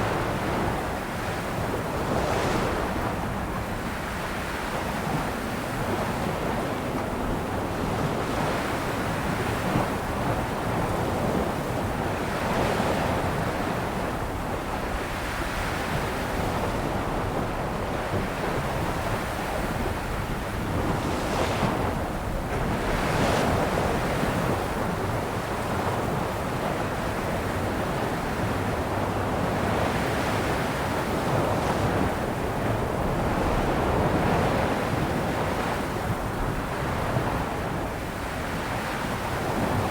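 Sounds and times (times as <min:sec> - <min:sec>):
wind noise on microphone: 0:00.0 - 0:39.9
sea waves breaking on shore: 0:11.8 - 0:39.9.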